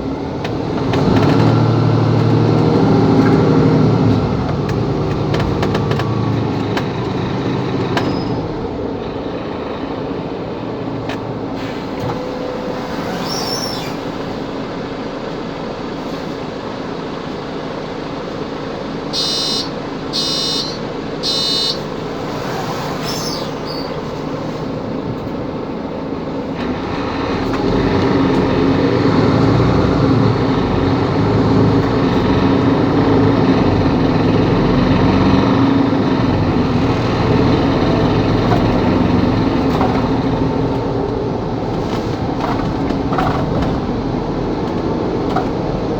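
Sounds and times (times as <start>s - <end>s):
bus engine running: 0.0s - 45.9s
short electronic beeps: 19.2s - 22.0s.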